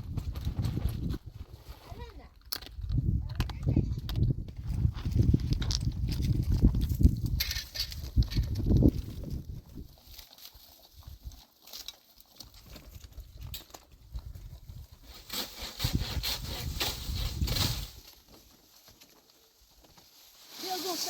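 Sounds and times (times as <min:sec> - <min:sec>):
wind rumbling on microphone: 0:00.0 - 0:10.1, 0:12.9 - 0:18.0
footsteps on stony ground: 0:00.0 - 0:14.7.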